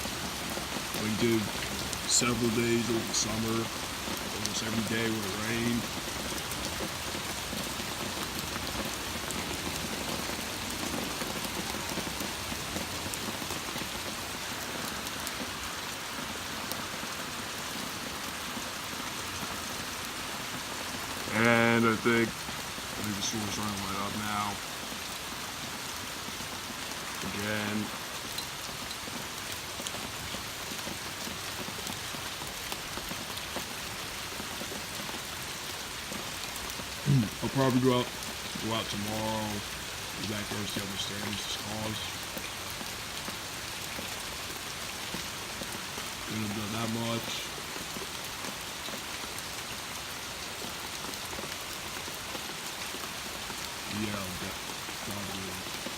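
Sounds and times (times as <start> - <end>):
torrential rain hissing: 0.0 - 55.9
raindrop ticks: 0.1 - 15.7, 20.9 - 25.1, 26.8 - 35.2, 36.0 - 49.3.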